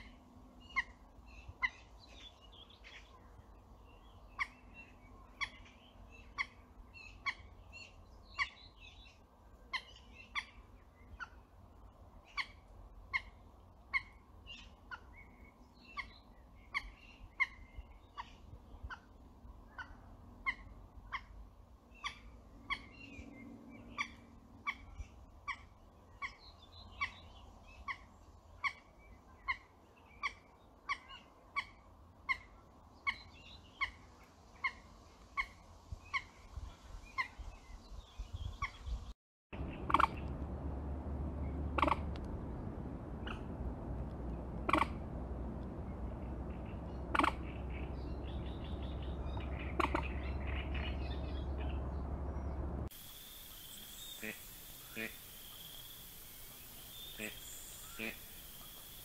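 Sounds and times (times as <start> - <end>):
faint twittering birdsong: 0.0 - 40.4, 41.2 - 59.0
wetland bird short sharp call: 53.0 - 59.0.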